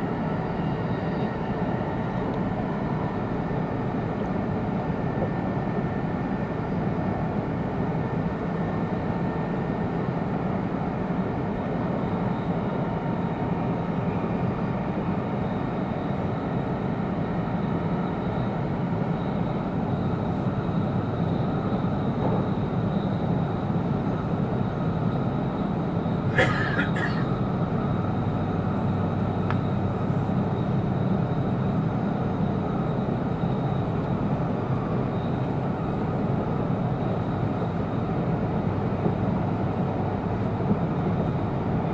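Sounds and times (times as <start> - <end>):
train cabin rumble: 19.8 - 24.7, 25.4 - 41.9.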